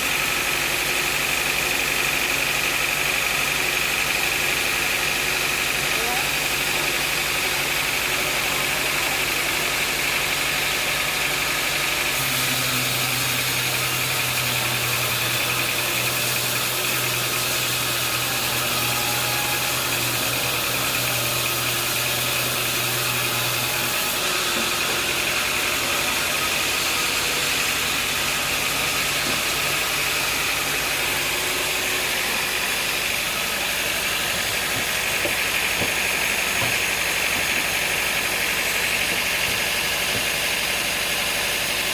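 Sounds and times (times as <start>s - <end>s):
sawmill machinery droning: 0.0s - 41.9s
deep steady hum: 24.1s - 40.3s.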